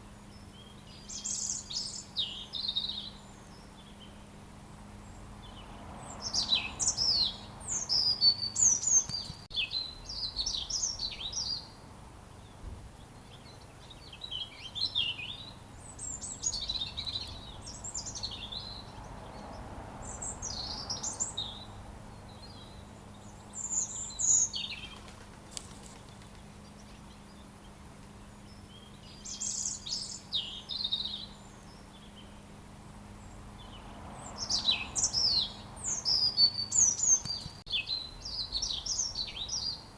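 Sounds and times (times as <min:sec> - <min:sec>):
robin singing: 0:00.0 - 0:11.8, 0:12.4 - 0:39.9.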